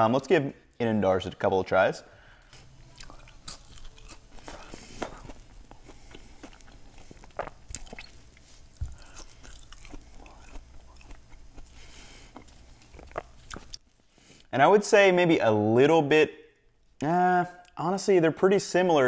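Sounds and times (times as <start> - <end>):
person chewing crispy fries: 2.5 - 14.0.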